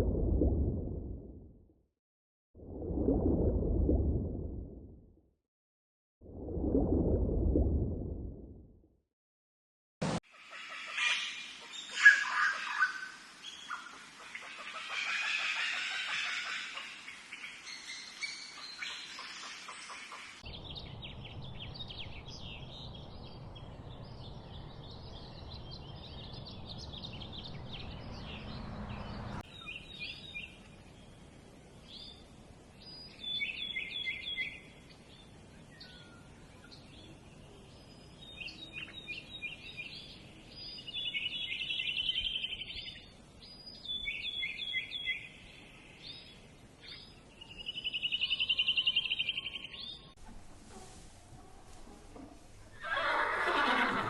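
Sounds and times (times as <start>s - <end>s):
low rumble: 0.0s - 1.7s, 2.6s - 5.2s, 6.3s - 8.8s
small birds chirping: 10.4s - 31.0s, 32.8s - 50.2s.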